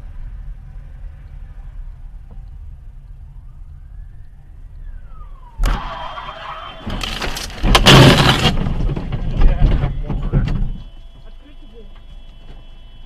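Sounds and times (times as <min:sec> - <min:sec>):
road rumble: 0:00.0 - 0:13.0
tyres squealing: 0:05.6 - 0:08.7
metal crunching and scraping: 0:05.7 - 0:10.8
loud crash bang: 0:06.8 - 0:10.8.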